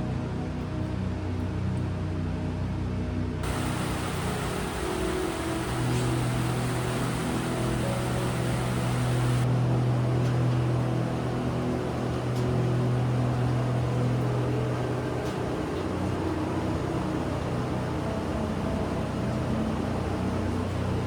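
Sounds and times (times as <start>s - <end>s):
low mechanical hum: 0.8s - 21.0s
rushing noise: 3.4s - 9.5s.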